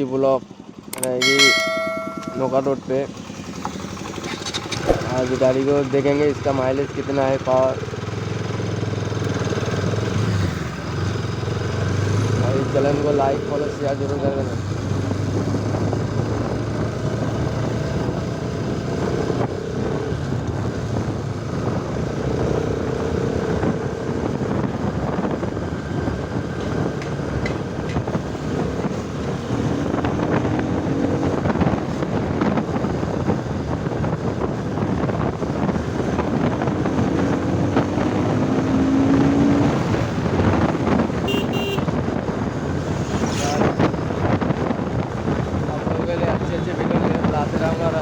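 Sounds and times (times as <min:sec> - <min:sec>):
wind noise on microphone: 0:14.3 - 0:48.0.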